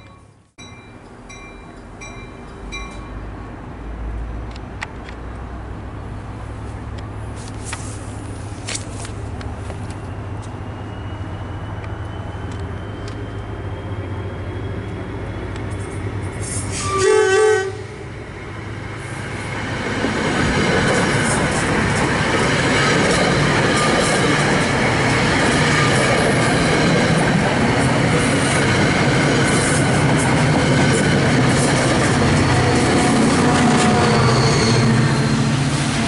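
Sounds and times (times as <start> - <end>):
train rumble: 0.0 - 36.0
wheel and rail noise: 0.0 - 36.0
train horn blast: 16.7 - 18.0, 32.3 - 35.7.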